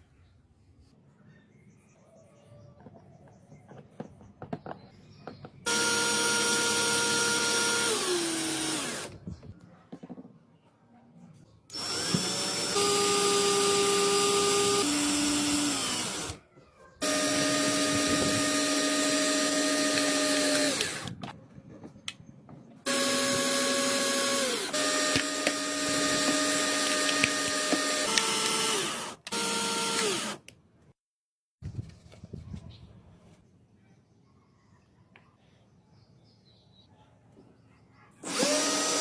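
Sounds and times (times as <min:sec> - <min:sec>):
high-speed electric power tool: 0:05.7 - 0:09.2, 0:11.7 - 0:16.4, 0:17.0 - 0:21.2, 0:22.9 - 0:30.4, 0:38.2 - 0:39.0.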